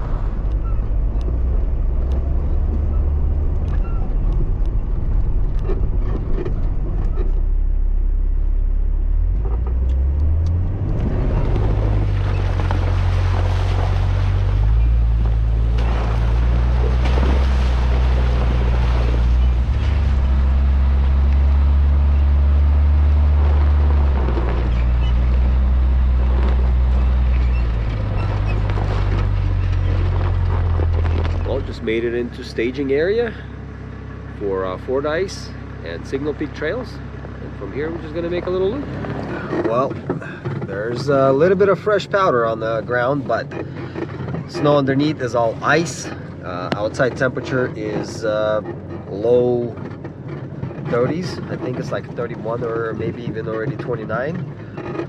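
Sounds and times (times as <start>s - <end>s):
off-road vehicle engine drone: 0.0s - 55.0s
tyre and road noise: 0.0s - 55.0s.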